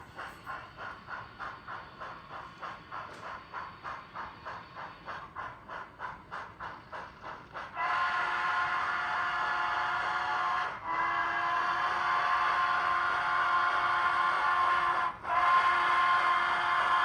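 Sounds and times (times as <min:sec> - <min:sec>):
model steam exhaust chuffs: 0:00.0 - 0:17.0
multi-tone train whistle: 0:07.7 - 0:17.0.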